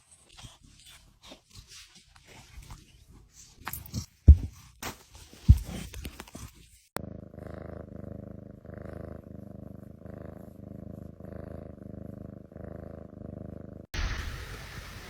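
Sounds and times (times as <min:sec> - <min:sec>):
cat purring: 0:07.0 - 0:14.9.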